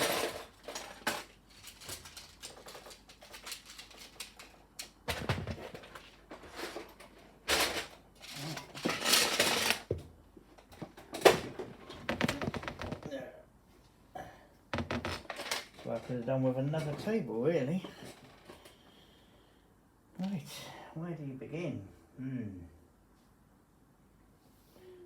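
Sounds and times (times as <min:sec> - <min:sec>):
plastic pieces clattering: 0:00.0 - 0:09.9, 0:11.0 - 0:13.1.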